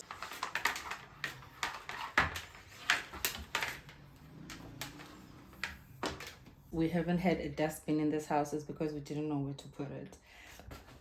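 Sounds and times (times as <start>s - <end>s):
groceries and packaging rustling: 0.0s - 7.1s, 10.4s - 11.0s.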